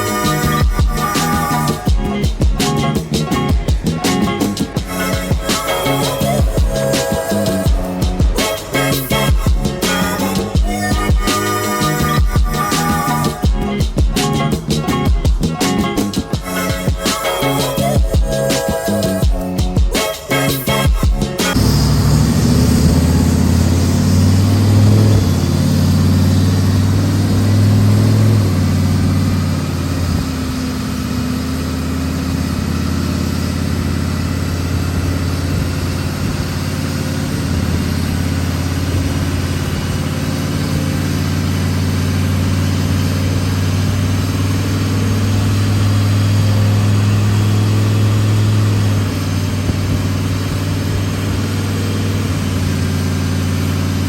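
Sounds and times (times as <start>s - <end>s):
truck engine running on dyno: 21.2s - 54.0s.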